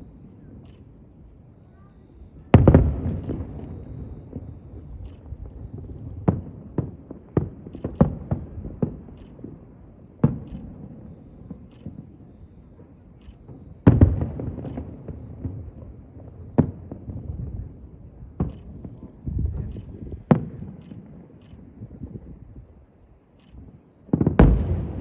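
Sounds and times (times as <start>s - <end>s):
fireworks bangs with rumble: 2.5s - 12.1s, 13.4s - 21.2s, 24.1s - 25.0s.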